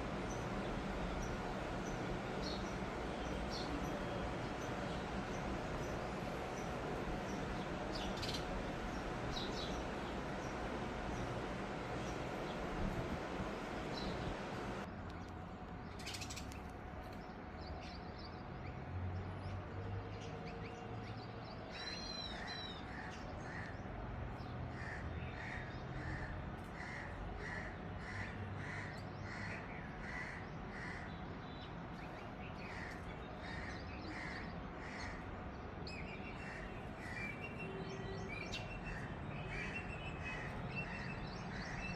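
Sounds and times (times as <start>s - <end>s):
low steady rumble: 0.0s - 14.9s.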